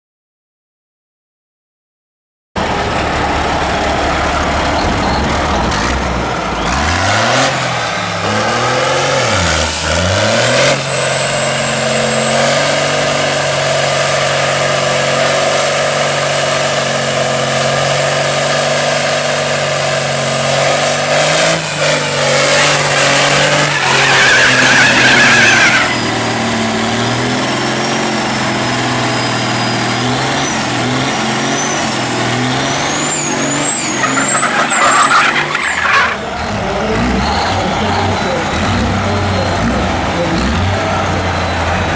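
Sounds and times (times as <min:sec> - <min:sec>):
diesel truck engine revving: 0:02.6 - 0:41.9.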